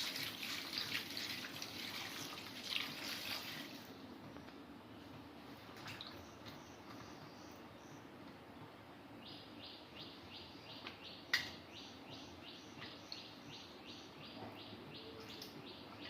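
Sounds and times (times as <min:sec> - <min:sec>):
bird chirping: 0:09.2 - 0:16.0.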